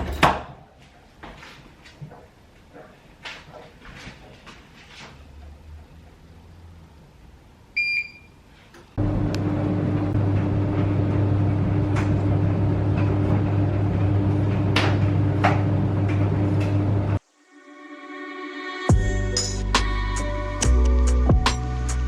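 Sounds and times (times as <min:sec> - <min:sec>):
microwave oven humming: 0:09.0 - 0:17.2.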